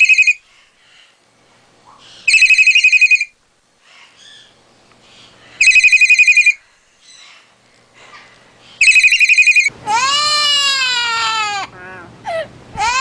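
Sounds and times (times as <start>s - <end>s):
trilling telephone ring: 0.0s - 0.4s, 2.3s - 3.3s, 5.6s - 6.6s, 8.8s - 9.7s.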